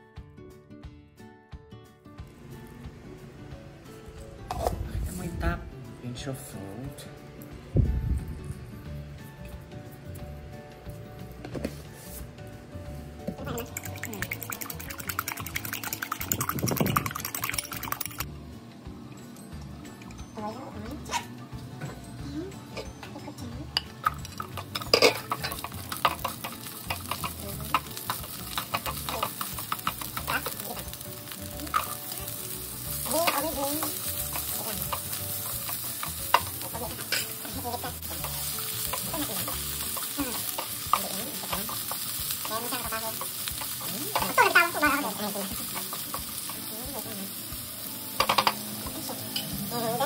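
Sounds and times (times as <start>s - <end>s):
vegetables sizzling in oil: 10.0s - 18.3s, 23.8s - 50.0s.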